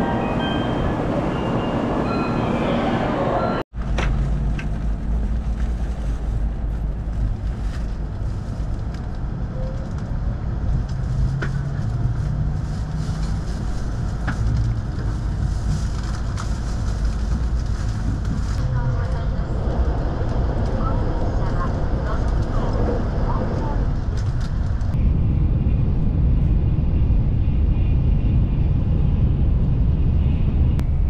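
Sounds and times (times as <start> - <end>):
train low rumble: 0.0 - 31.0.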